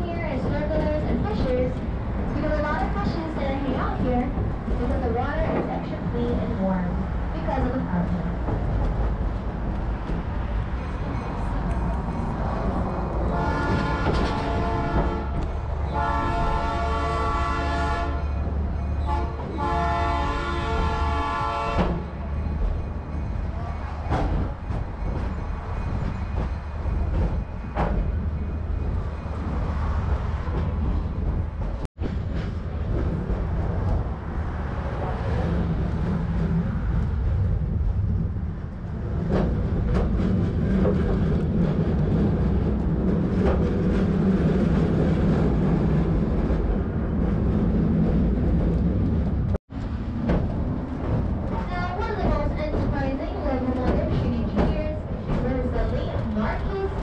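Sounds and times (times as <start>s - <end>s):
train rumbling along track: 0.0s - 57.0s
train horn blasts: 13.3s - 18.4s, 19.0s - 22.0s.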